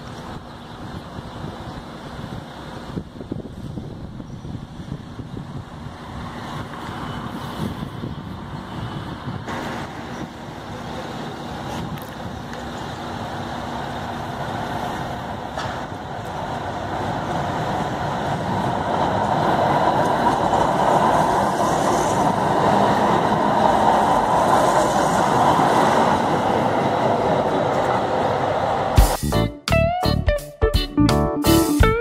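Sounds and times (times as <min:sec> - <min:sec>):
train passing on rails: 0:00.0 - 0:29.5
music: 0:29.0 - 0:32.0.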